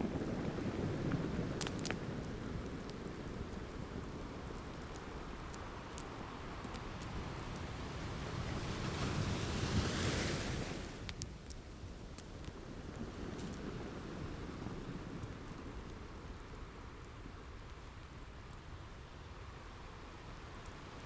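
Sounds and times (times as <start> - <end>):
ocean waves washing ashore: 0.0 - 11.2
crackling wood fire: 0.0 - 21.0.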